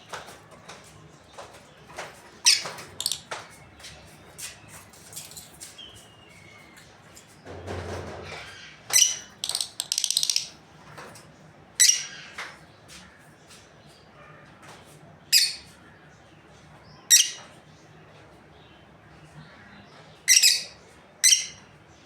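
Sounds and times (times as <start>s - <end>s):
birds chirping shrilly: 2.5s - 3.3s, 8.4s - 10.6s.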